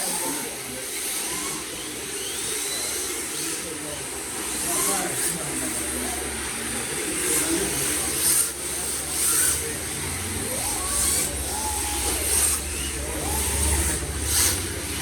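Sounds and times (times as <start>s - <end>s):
electric motor whine: 0.0s - 15.0s
drift tyres hissing: 5.9s - 15.0s.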